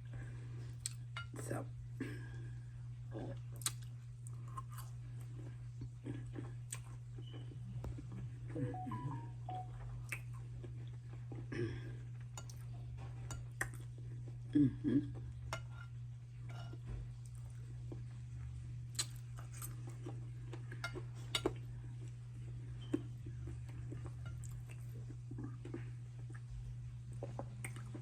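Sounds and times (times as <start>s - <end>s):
eating and food handling: 9.5s - 28.0s.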